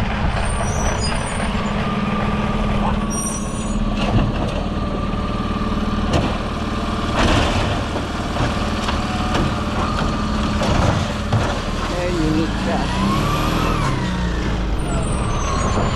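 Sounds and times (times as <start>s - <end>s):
truck diesel engine idling: 1.5s - 13.0s.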